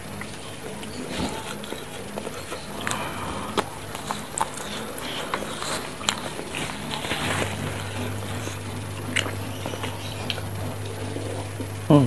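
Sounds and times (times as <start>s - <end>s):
person chewing: 0.0s - 11.8s
wet mouth smacks and clicks: 9.0s - 11.3s.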